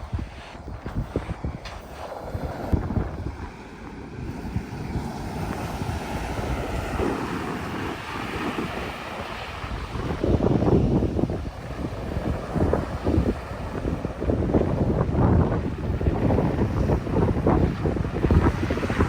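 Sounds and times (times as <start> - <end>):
ocean surf: 0.0 - 19.0
wind buffeting the microphone: 0.0 - 19.0.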